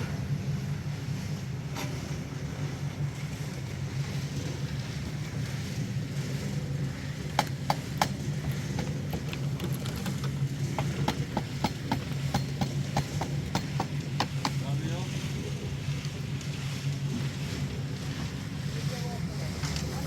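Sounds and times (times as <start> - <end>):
engine humming steadily: 0.0 - 20.0
sharp clicks and knocks: 7.4 - 14.6.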